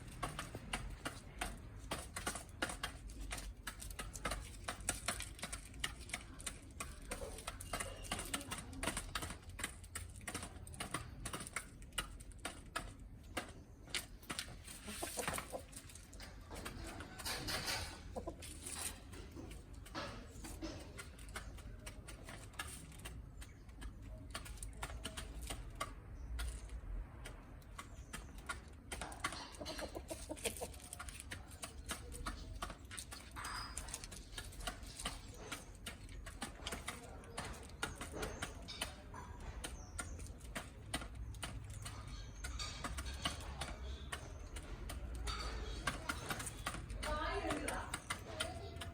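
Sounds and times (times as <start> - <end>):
chickens pecking feed: 0.0 - 48.9
soft chicken clucks: 12.4 - 26.6, 27.6 - 46.8.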